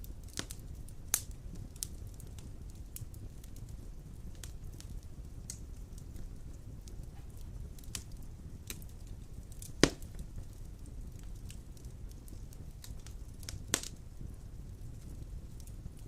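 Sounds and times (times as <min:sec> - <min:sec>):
wood fire crackling: 0:00.0 - 0:16.0
loud pop of fire: 0:04.3 - 0:11.6, 0:12.2 - 0:16.0.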